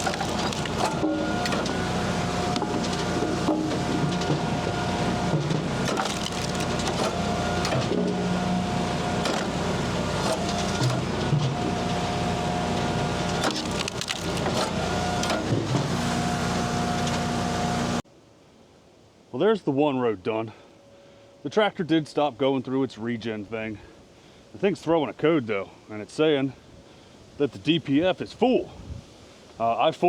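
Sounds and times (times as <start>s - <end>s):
knocks of split wood: 0.0s - 1.8s, 5.2s - 8.1s, 9.2s - 11.4s, 13.3s - 15.6s
wood cracking and splintering: 0.0s - 12.0s, 12.7s - 16.1s
log splitter engine hum: 0.0s - 18.0s.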